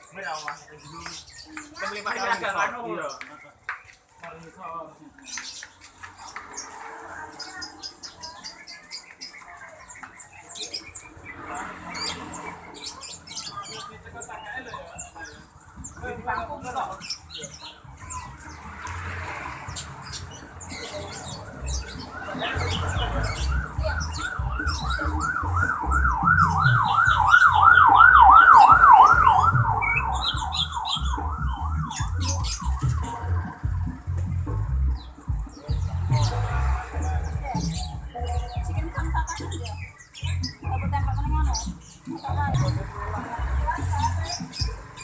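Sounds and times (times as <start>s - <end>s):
caged birds chirping: 0.0s - 45.0s
yelping siren: 22.1s - 33.7s.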